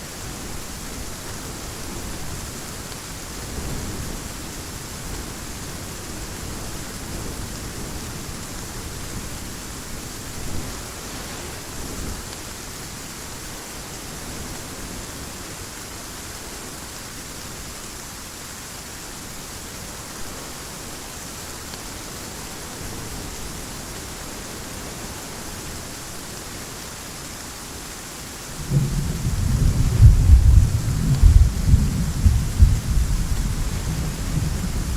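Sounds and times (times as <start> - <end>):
heavy rain falling: 0.0 - 34.9
loud peal of thunder: 28.6 - 34.9
thunder rumbling: 28.6 - 34.9.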